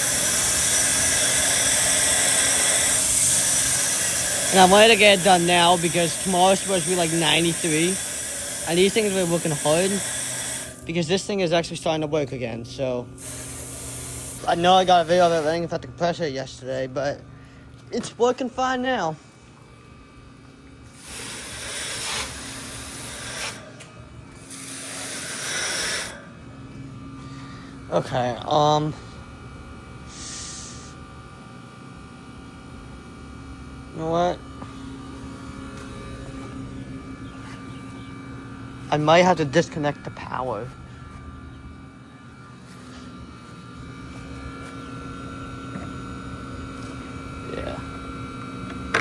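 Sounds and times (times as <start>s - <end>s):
hissing water spray: 0.0s - 10.9s, 13.2s - 15.7s, 20.9s - 23.8s, 24.4s - 26.3s, 30.1s - 31.0s
heat pump humming: 0.0s - 49.0s.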